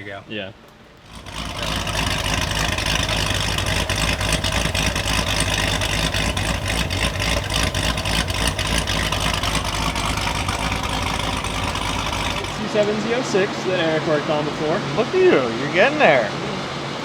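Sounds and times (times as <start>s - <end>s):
car engine idling: 1.0s - 14.6s.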